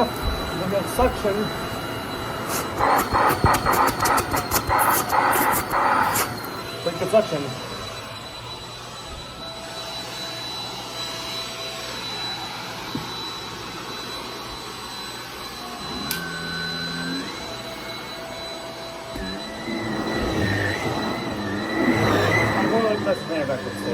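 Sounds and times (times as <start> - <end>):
stick vacuum running: 0.0 - 23.9
higher tone rising: 15.0 - 23.9.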